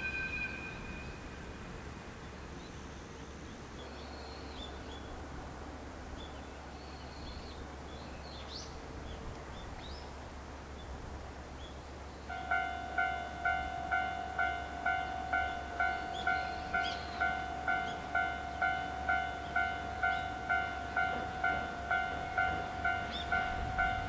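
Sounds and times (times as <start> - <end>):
small birds chirping: 16.0 - 18.2.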